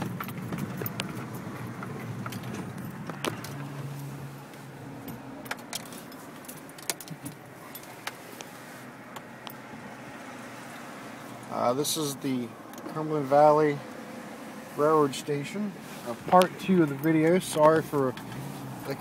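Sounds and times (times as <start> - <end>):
clicks and rattles inside car: 0.0 - 9.7, 15.3 - 19.0
low rumble of engine and road: 0.0 - 19.0.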